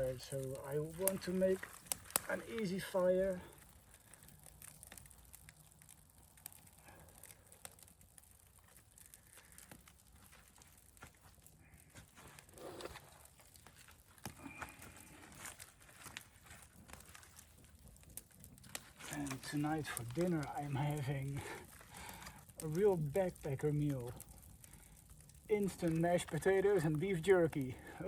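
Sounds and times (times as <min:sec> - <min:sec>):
fire crackling and snapping: 0:00.0 - 0:28.0.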